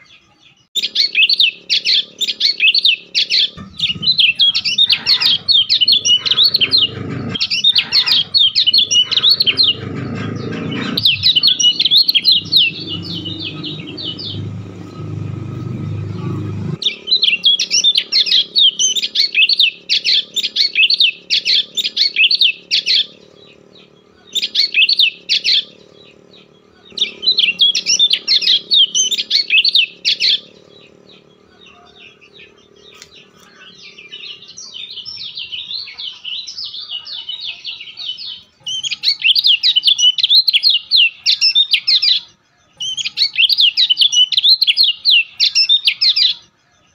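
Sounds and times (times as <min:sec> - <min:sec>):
bird chirping rapidly: 0:00.7 - 0:46.5
low rumble: 0:03.6 - 0:18.9.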